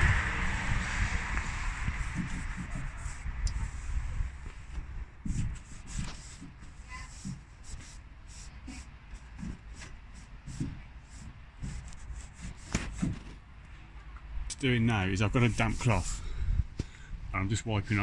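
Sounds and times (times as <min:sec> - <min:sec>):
hand scrubbing plastic surfaces: 0:01.7 - 0:03.9, 0:04.5 - 0:13.3, 0:15.3 - 0:16.2.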